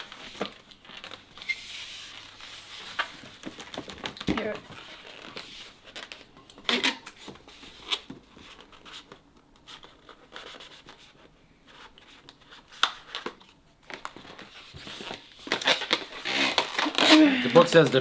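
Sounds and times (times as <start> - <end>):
balloon rubbing: 16.2 - 17.9.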